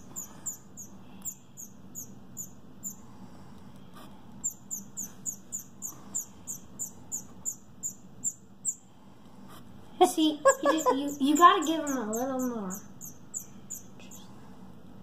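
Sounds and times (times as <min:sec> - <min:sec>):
baby bird begging chirps: 0:00.0 - 0:03.1, 0:04.4 - 0:08.9, 0:10.4 - 0:14.3.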